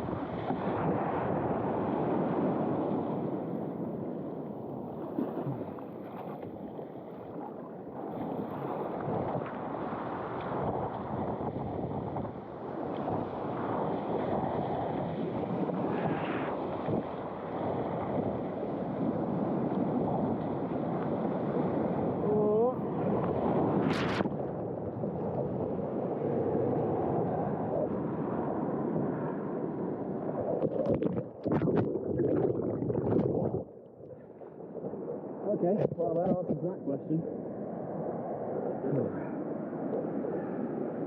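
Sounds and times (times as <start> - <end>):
wind buffeting microphone: 8.6 - 34.4.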